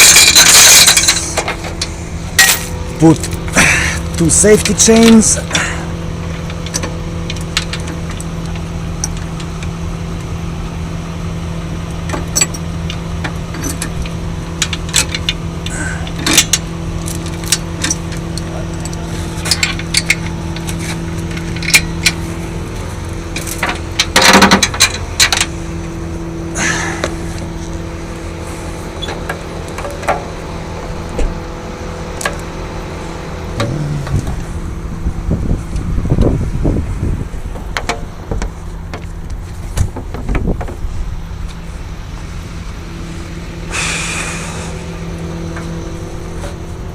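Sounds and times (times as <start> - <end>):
metal chains clanking: 0.0 - 3.6
truck engine idling: 0.0 - 46.9.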